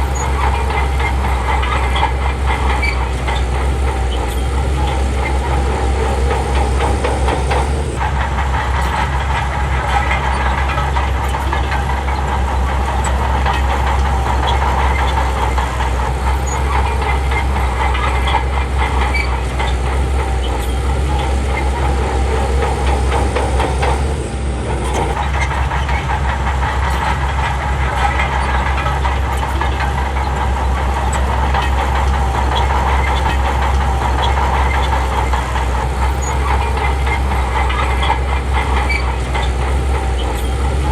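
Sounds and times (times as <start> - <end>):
bulldozer diesel engine running: 0.0 - 40.9
steel tracks clattering: 0.0 - 40.9.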